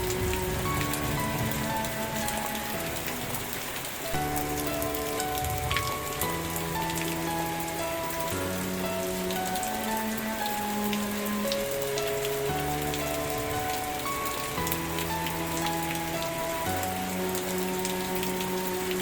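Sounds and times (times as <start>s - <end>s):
soft background music: 0.0s - 19.0s
steady rain: 0.0s - 19.0s.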